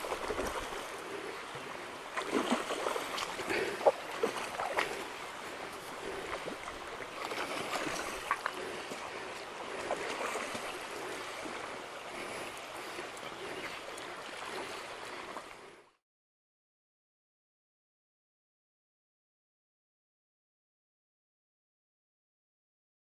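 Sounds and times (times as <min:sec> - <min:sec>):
river water rushing: 0:00.0 - 0:15.8
small water splashes: 0:00.0 - 0:15.8.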